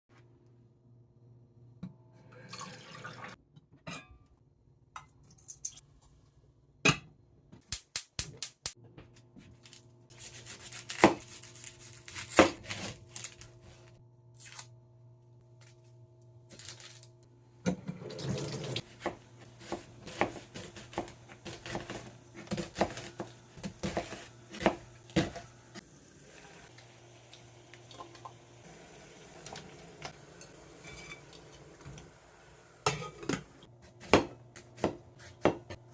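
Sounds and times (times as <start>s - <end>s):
running water: 17.9s - 18.8s
dishes and utensils clinking: 29.5s - 32.0s, 32.8s - 33.7s.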